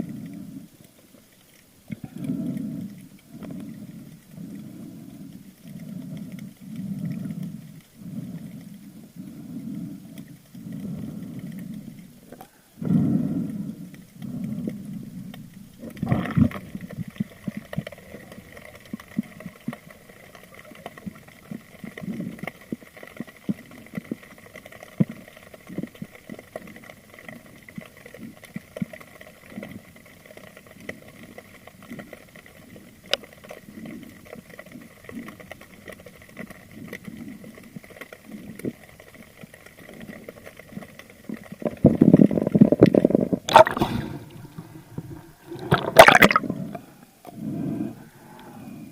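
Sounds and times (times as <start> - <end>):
faint steady whine: 0.0 - 48.9
underwater clicks and knocks: 39.9 - 46.8
water rushing burst: 43.5 - 46.8.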